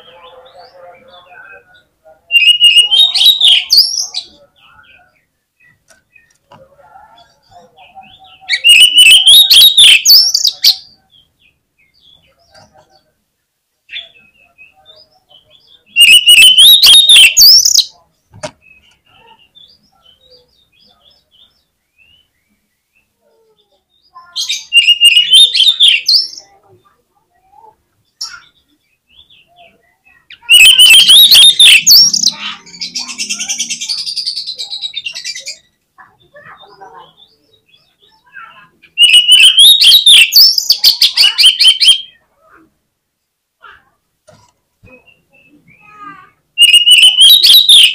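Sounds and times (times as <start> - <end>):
bird chirps: 0.0 - 13.1, 13.9 - 18.0, 18.6 - 42.3, 44.8 - 47.9
magpie-robin whistled song: 2.3 - 4.3, 8.2 - 10.9, 13.9 - 18.0, 24.4 - 26.5, 28.3 - 35.6, 37.1 - 42.2, 45.0 - 47.9
bird whistle rising in pitch: 8.7 - 10.2, 16.0 - 17.6, 30.5 - 32.1, 39.0 - 40.6, 46.6 - 47.9.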